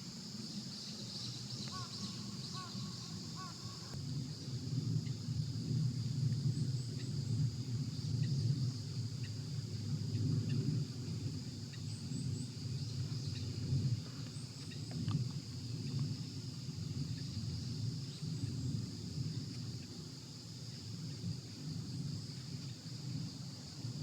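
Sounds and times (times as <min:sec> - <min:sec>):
high insect buzz: 0:00.0 - 0:04.4
crow cawing: 0:02.6 - 0:03.9.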